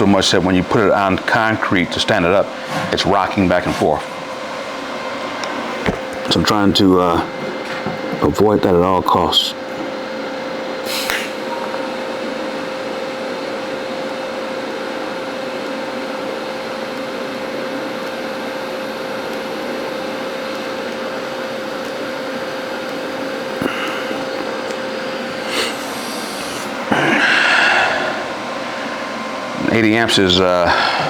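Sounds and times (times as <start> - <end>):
welding arc hissing: 10.8 - 11.5, 20.6 - 29.1.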